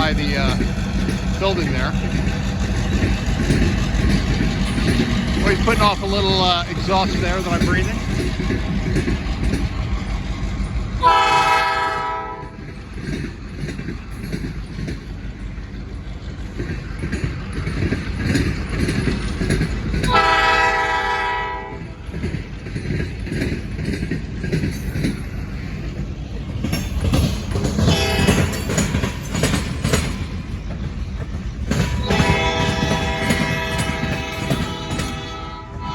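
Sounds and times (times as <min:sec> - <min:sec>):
locomotive engine rumble: 0:00.0 - 0:35.9
train rolling on rails: 0:00.0 - 0:35.9
diesel locomotive horn blasts: 0:11.0 - 0:12.6, 0:20.1 - 0:21.9, 0:27.9 - 0:28.6, 0:32.0 - 0:35.9.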